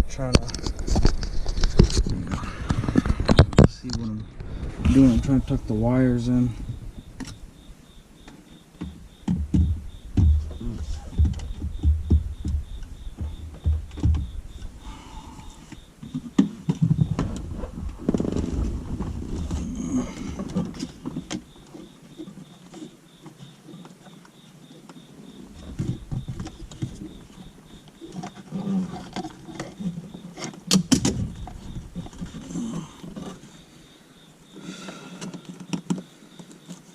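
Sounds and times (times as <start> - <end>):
scraping and rustling: 0.0 - 7.5, 8.8 - 23.9.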